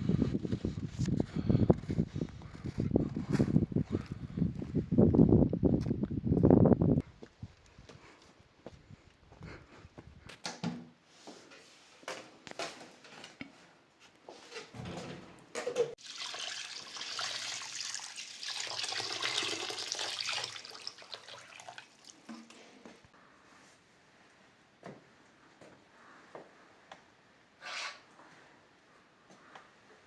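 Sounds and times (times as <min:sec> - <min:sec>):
water running: 0:16.0 - 0:22.9.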